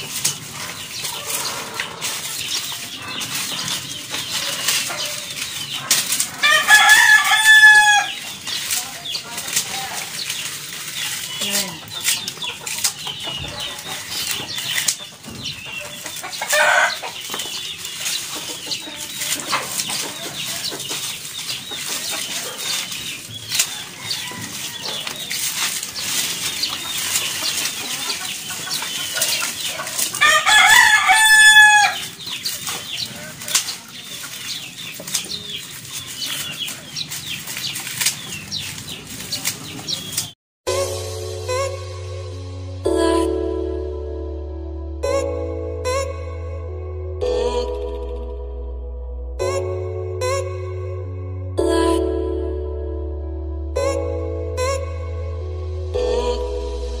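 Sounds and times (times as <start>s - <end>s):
dry leaves crackling and rustling: 0.0s - 44.0s
rooster crowing: 6.3s - 8.2s, 23.5s - 25.3s, 30.2s - 32.1s.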